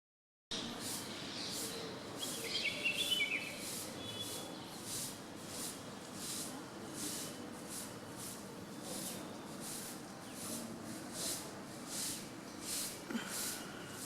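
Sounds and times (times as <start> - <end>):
bird chirps: 0.6 - 4.5.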